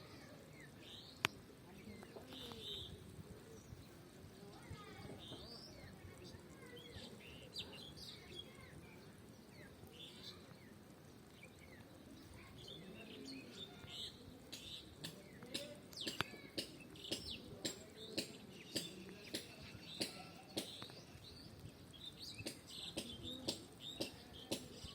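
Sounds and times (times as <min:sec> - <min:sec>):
small birds chirping: 0:00.0 - 0:24.9
sharp clicks or taps: 0:14.5 - 0:21.0.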